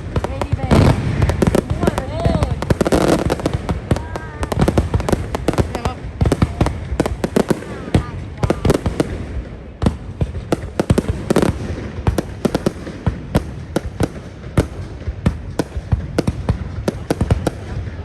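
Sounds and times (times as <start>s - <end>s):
fireworks bangs: 0.0s - 18.0s
rumble of firework bursts: 0.0s - 18.0s.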